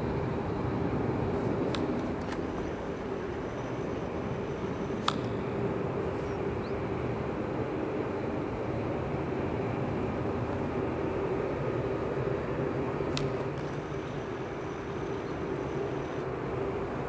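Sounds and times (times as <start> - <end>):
faint hum: 0.0 - 17.0
sharp click: 5.0 - 5.4.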